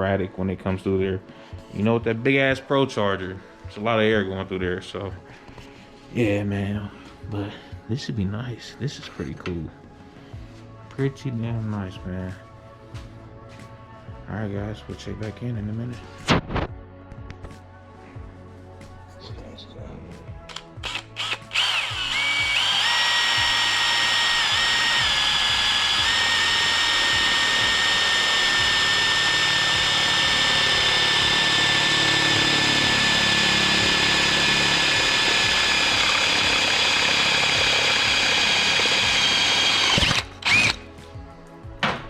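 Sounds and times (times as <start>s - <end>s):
power tool trigger blips: 20.5s - 40.8s
power tool high-pitched whine: 20.8s - 40.8s.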